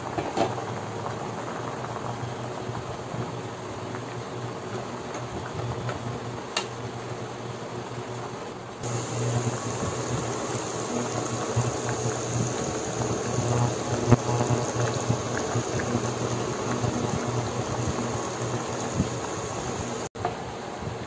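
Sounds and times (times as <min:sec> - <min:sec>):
broth boiling and bubbling: 0:00.0 - 0:20.1
steady low hum: 0:08.8 - 0:20.1.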